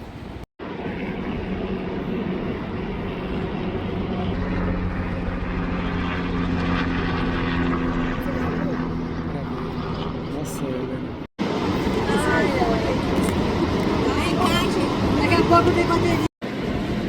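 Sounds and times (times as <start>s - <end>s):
aircraft engine droning overhead: 0.0s - 17.0s
steady rush of noise: 11.4s - 17.0s.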